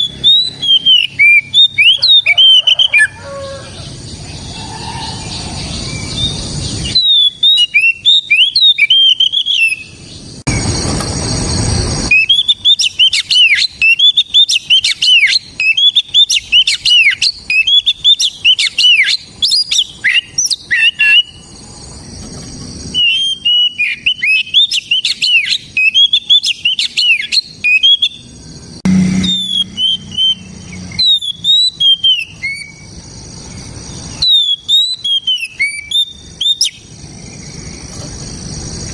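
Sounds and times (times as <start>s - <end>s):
bird singing whistled notes: 0.0s - 3.2s, 4.3s - 10.7s, 12.1s - 21.6s, 22.9s - 28.3s, 28.9s - 37.8s
loud rushing noise: 10.4s - 12.2s, 28.7s - 31.1s.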